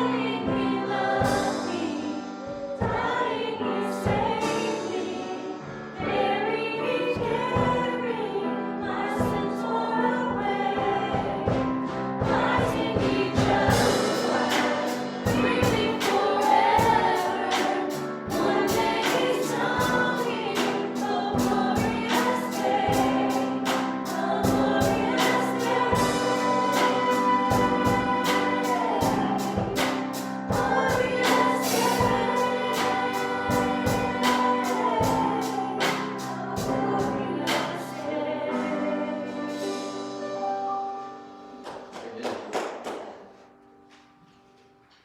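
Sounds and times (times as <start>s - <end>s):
voices singing together: 0.0s - 40.1s
steady drum beat: 0.2s - 3.3s, 10.4s - 38.0s.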